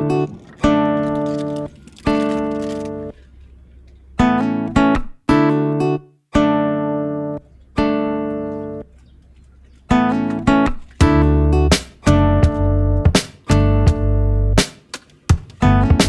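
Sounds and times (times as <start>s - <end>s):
acoustic guitar plucked chords: 4.2s - 8.9s, 9.9s - 14.7s, 15.3s - 16.0s.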